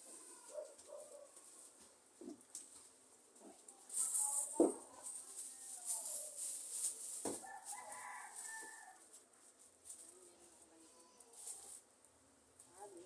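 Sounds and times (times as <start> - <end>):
rooster crowing: 7.4 - 9.0.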